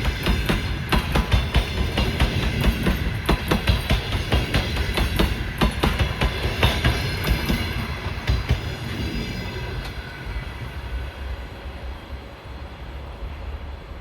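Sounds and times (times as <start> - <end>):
train wheels clacking over rail joints: 0.0 - 9.0
train cars rumbling: 0.0 - 14.0.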